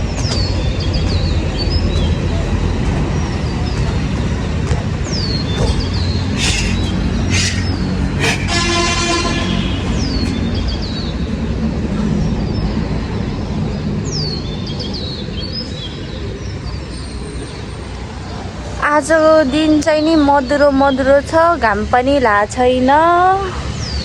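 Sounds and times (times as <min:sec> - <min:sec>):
low traffic rumble: 0:00.0 - 0:23.6
small birds chirping: 0:05.1 - 0:08.7
horn toot: 0:06.4 - 0:10.3.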